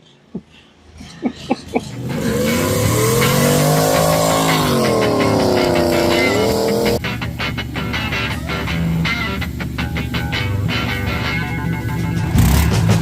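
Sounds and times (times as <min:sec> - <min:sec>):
car engine revving: 0:01.0 - 0:07.1, 0:12.2 - 0:13.0.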